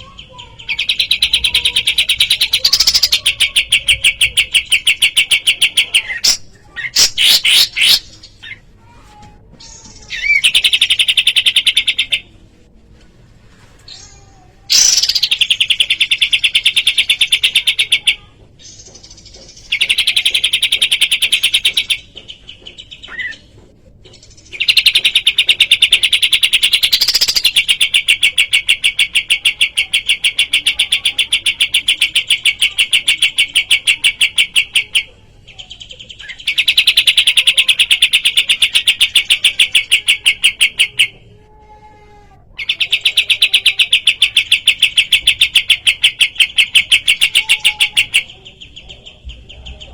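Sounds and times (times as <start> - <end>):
bird singing fast trills: 14.7 - 23.4.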